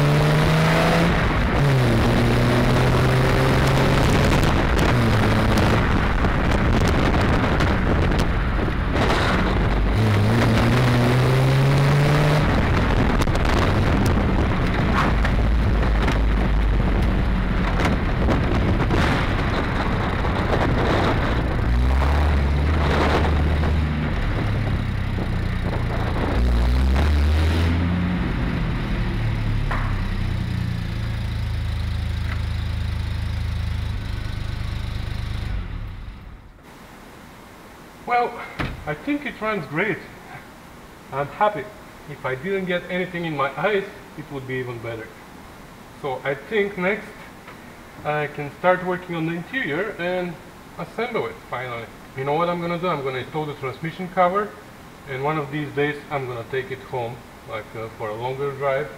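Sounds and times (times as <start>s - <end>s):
wind noise: 0.0s - 28.9s
car engine accelerating: 0.0s - 36.6s
road noise: 0.0s - 58.9s.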